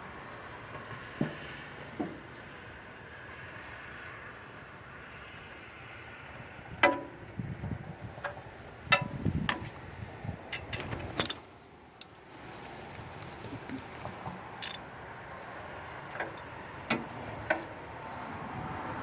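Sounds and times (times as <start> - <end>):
metal tools clanking: 10.5 - 12.2, 14.6 - 14.9
light metal clinks: 10.5 - 12.3, 12.9 - 14.9.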